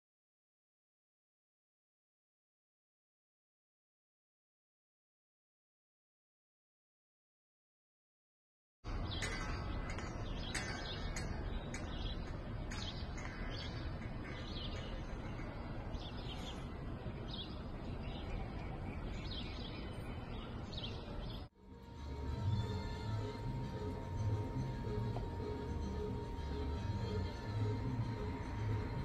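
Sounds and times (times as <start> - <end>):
birds chirping: 8.9 - 29.0
low outdoor rumble: 11.3 - 29.0.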